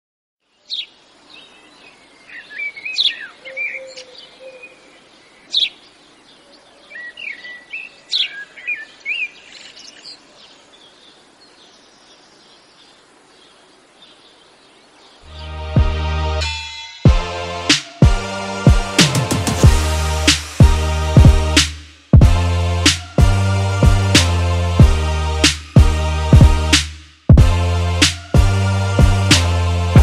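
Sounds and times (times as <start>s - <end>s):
faint outdoor hiss: 0.4s - 23.0s
birds chirping and calling: 0.6s - 15.6s.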